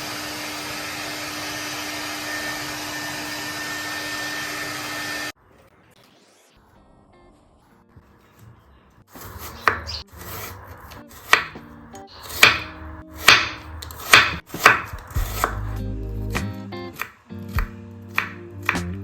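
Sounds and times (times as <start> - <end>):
knife chopping on cutting board: 9.2 - 10.5, 11.1 - 15.7, 16.3 - 19.0.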